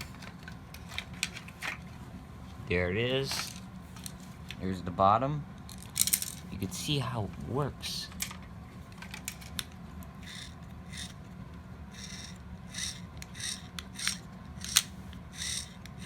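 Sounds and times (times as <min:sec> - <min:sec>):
plastic toy mechanism rasping: 0:05.7 - 0:06.4, 0:09.2 - 0:11.2, 0:11.9 - 0:16.0.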